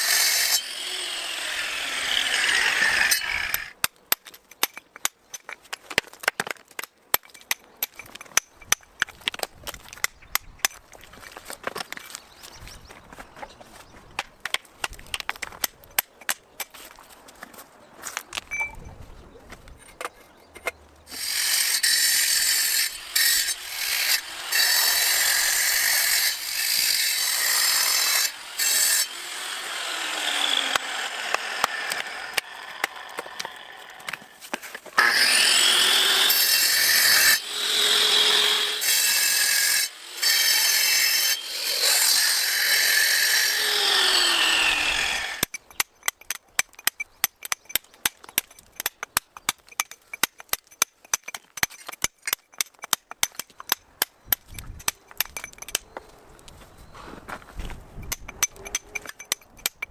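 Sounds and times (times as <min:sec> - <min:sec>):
angle grinder cutting stone: 0:00.0 - 0:03.8, 0:21.1 - 0:34.4, 0:35.0 - 0:45.8.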